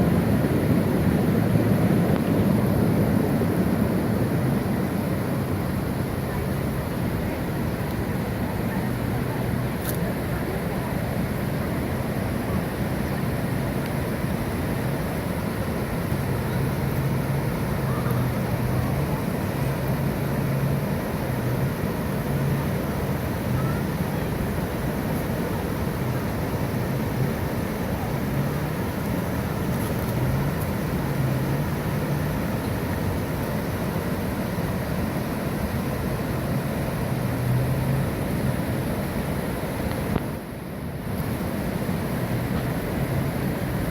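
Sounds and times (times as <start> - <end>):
water rushing over waterfall: 0.0 - 43.9.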